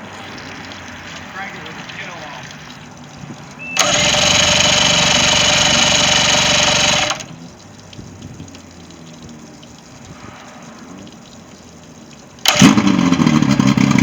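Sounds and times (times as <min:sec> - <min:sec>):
starter motor whirring: 0:03.2 - 0:07.4, 0:12.4 - 0:14.0.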